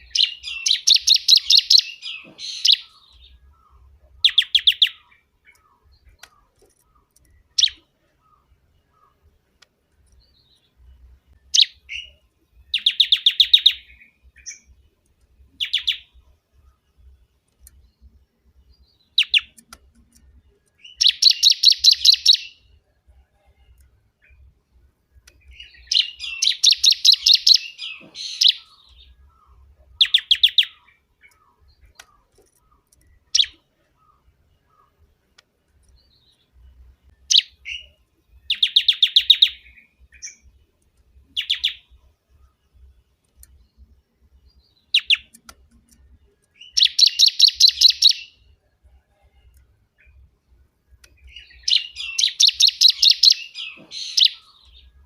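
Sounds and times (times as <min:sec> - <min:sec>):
bird singing chattering notes: 0:00.0 - 0:09.2, 0:11.4 - 0:14.7, 0:17.7 - 0:22.6, 0:25.3 - 0:35.0, 0:37.2 - 0:40.5, 0:41.3 - 0:41.9, 0:44.6 - 0:48.4, 0:51.2 - 0:55.0
sharp bird call notes: 0:25.7 - 0:28.9, 0:51.6 - 0:54.7.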